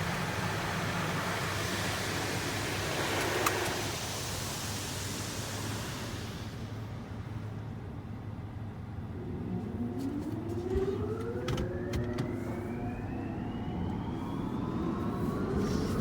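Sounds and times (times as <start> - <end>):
car wash rushing hiss: 0.0 - 7.5.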